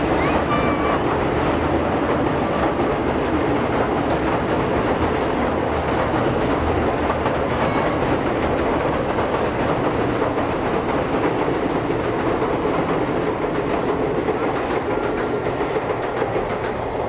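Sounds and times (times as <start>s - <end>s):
wheels rumbling on rail: 0.0s - 17.0s
faint wheel clicks: 5.2s - 16.7s.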